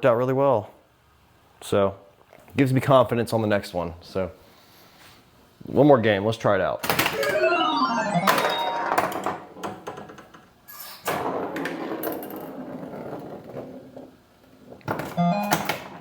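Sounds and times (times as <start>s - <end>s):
noisy electronic sound: 7.1s - 9.4s
electronic rising and falling sweeps: 7.2s - 9.4s.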